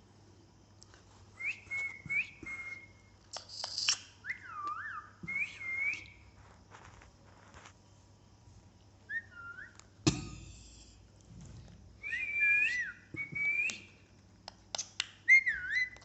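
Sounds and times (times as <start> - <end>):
parrot whistling: 3.9 - 6.2, 9.1 - 9.8, 12.0 - 13.9, 15.2 - 16.0.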